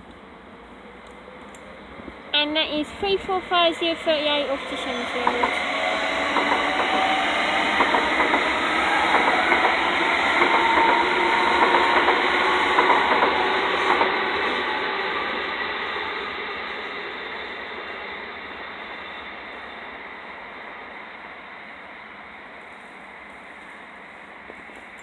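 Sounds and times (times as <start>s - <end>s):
electric train pulling away: 0.8s - 25.0s
train wheels clicking over rail joints: 5.0s - 14.5s.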